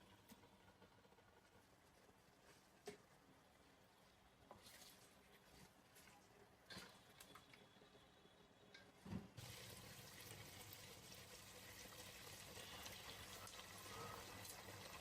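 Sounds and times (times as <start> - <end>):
water running from tap: 9.4 - 15.0.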